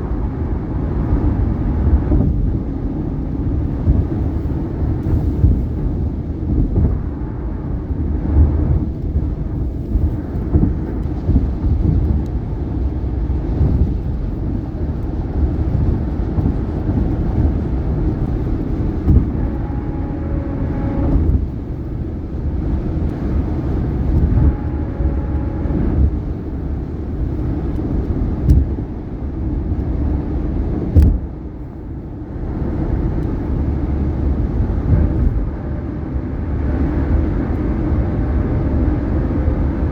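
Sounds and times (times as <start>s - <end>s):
tyre and road noise: 0.0s - 39.9s.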